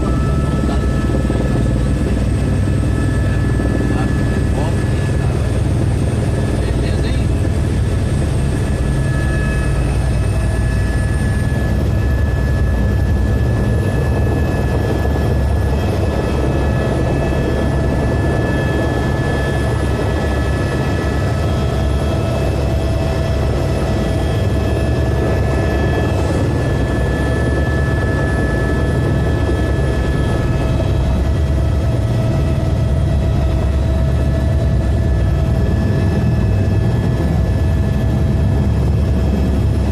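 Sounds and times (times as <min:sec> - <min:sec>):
helicopter rotor rumble: 0:00.0 - 0:39.9
turbine whine: 0:00.0 - 0:39.9.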